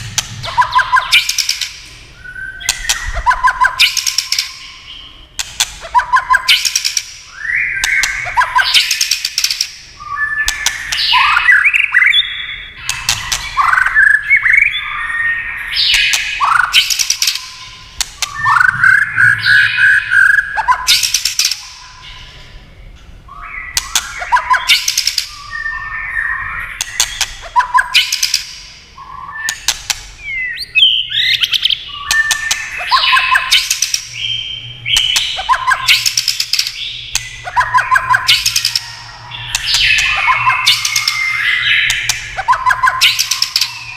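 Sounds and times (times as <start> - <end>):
bird clicking calls: 0.0 - 1.8, 2.6 - 4.6, 5.4 - 7.2, 7.8 - 9.8, 10.4 - 12.0, 12.8 - 14.2, 15.9 - 18.7, 20.5 - 21.8, 23.7 - 25.4, 26.8 - 28.6, 29.4 - 34.2, 34.9 - 43.9
bird singing whistled phrases: 2.2 - 5.1, 5.9 - 22.2, 23.3 - 43.9.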